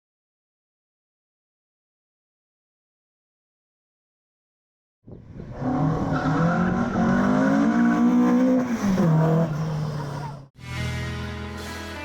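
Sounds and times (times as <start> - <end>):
car engine revving: 5.6 - 10.5.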